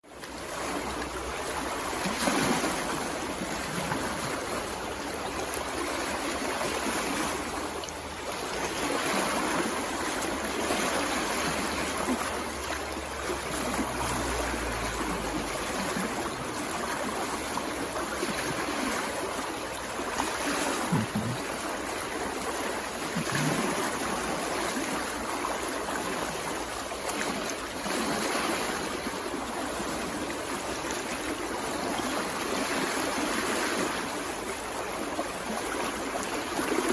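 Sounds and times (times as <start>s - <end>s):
stream water gurgling: 0.0s - 36.9s.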